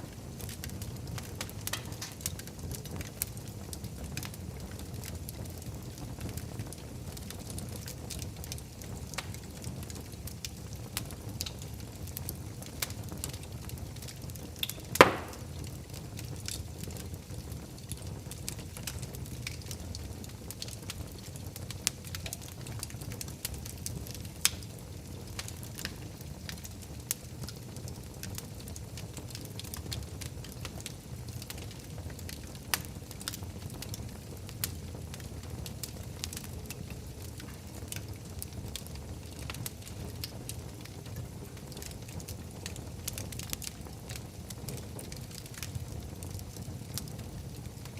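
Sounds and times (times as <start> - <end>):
fire rumbling and crackling: 0.0 - 47.9
loud pop of burning wood: 1.2 - 2.4, 14.6 - 16.6.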